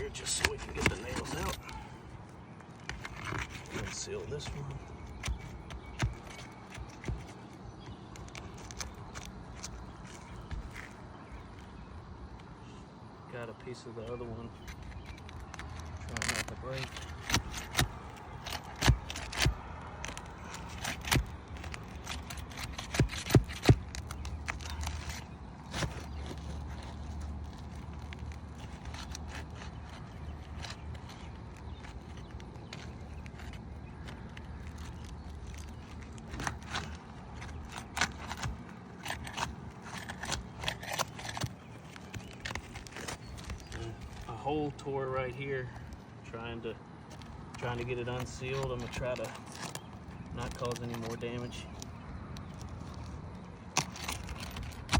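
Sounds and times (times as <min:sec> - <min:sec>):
roof shingles snapping and cracking: 0:14.7 - 0:44.3.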